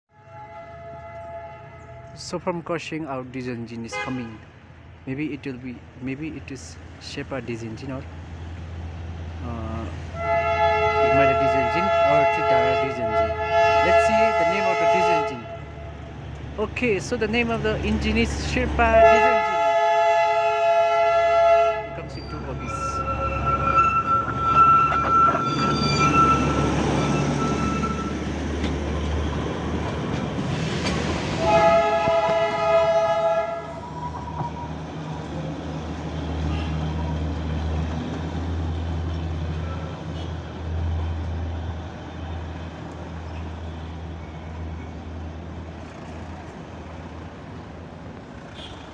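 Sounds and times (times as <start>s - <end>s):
train horn blast: 0.1s - 2.2s, 3.9s - 4.4s, 10.1s - 16.0s, 18.9s - 25.3s, 31.4s - 33.9s, 48.6s - 48.9s
diesel locomotive engine hum: 0.1s - 48.9s
thin high squeal: 22.1s - 28.1s.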